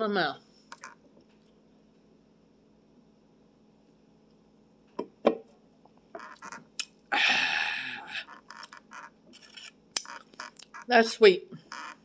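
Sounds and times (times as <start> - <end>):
breathy vocal sound: 7.1 - 8.3.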